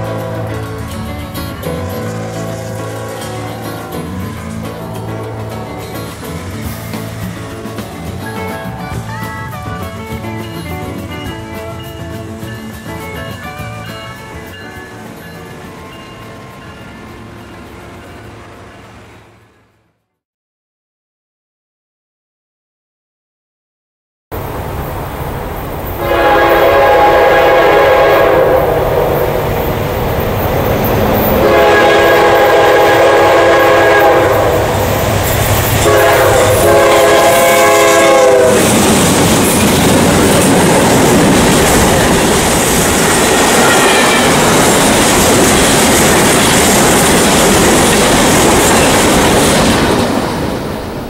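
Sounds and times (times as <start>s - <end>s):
train wheels rumbling on rails: 0.0s - 19.8s, 24.4s - 51.0s
locomotive air horn blasts: 26.0s - 29.5s, 31.4s - 35.0s, 35.8s - 38.7s.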